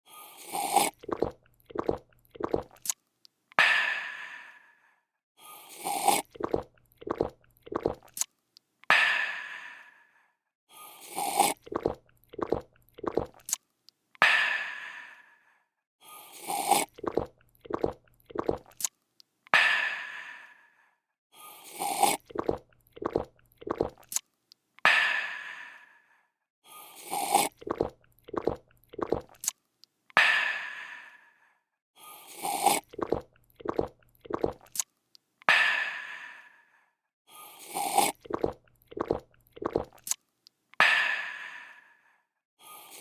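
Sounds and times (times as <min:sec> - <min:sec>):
person slurping and gulping: 0:00.0 - 0:03.0, 0:05.5 - 0:08.3, 0:10.8 - 0:13.6, 0:16.2 - 0:18.9, 0:21.5 - 0:24.3, 0:26.8 - 0:29.6, 0:32.1 - 0:34.9, 0:37.4 - 0:40.2.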